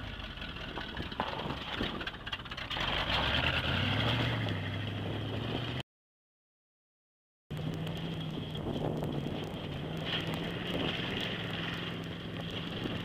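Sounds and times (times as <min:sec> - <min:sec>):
pickup engine revving: 0:00.0 - 0:05.8.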